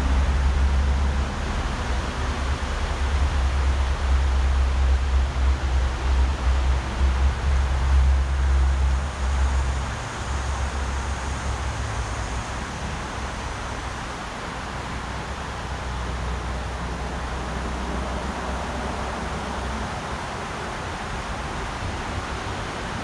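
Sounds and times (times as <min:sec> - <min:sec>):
wind rumbling on microphone: 0:00.0 - 0:23.0
river water rushing: 0:07.7 - 0:23.0.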